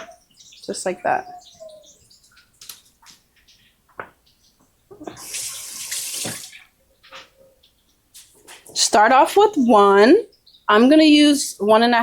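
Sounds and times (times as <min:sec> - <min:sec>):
kitchen tap running: 0:04.9 - 0:06.7.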